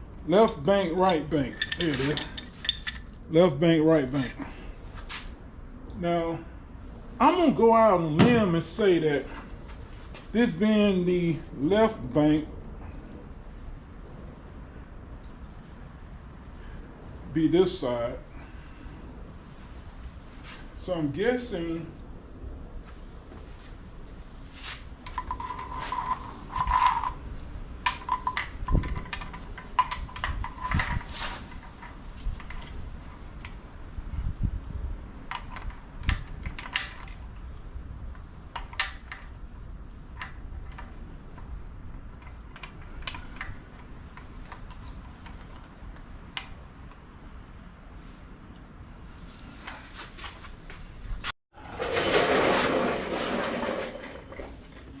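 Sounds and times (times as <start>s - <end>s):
metallic clicks and clinks of tools: 1.0s - 3.2s.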